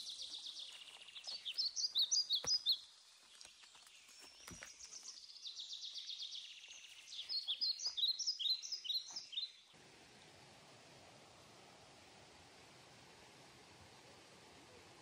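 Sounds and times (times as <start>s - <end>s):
wild birds singing: 0.0s - 9.8s
steady hiss: 9.8s - 15.0s.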